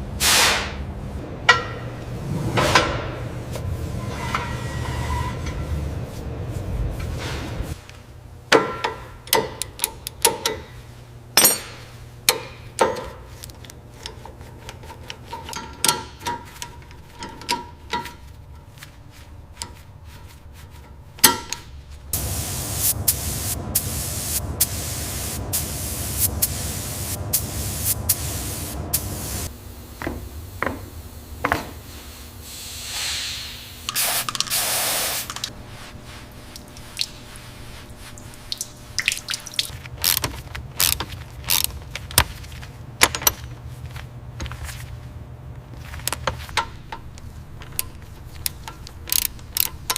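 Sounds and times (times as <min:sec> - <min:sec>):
hissing tool noise: 0:22.2 - 0:35.6.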